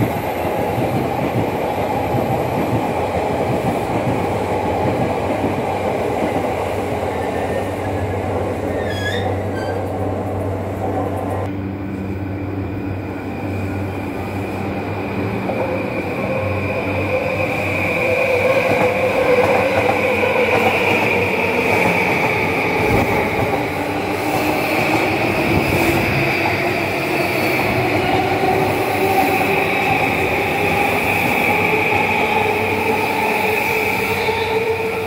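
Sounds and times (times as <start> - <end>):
train wheels squealing on rails: 7.1 - 10.0.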